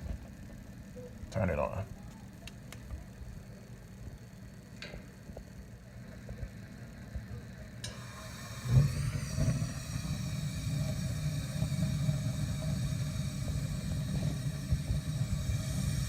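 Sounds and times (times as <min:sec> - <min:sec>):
burner low rumble and hiss: 0:00.0 - 0:16.0
gas burner lighting with a whoosh: 0:07.8 - 0:16.0.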